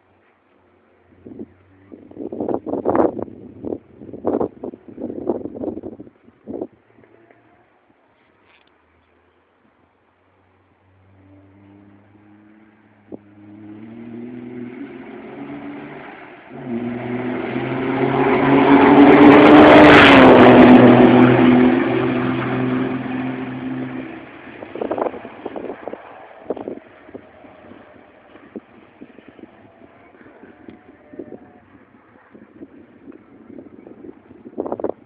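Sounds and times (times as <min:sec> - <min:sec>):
truck diesel engine passing by: 0:10.7 - 0:32.0.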